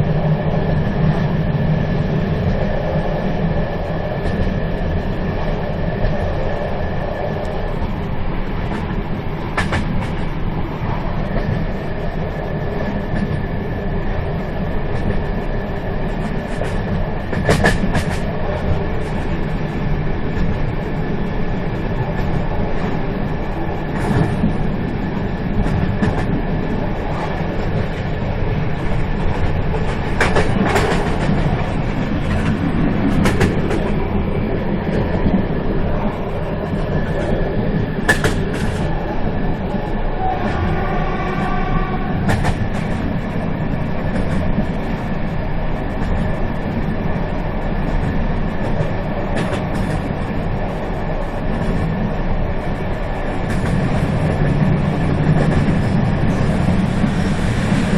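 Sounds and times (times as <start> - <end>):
train rumbling: 0.0 - 57.9
wheel-on-rail clacks: 16.2 - 19.5, 28.8 - 34.0.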